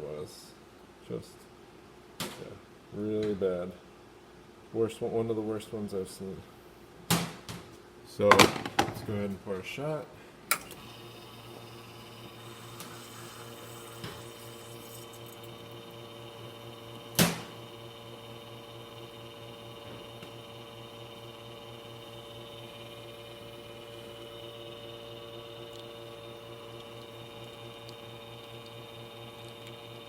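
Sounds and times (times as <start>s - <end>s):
espresso machine pump humming: 10.5s - 30.0s.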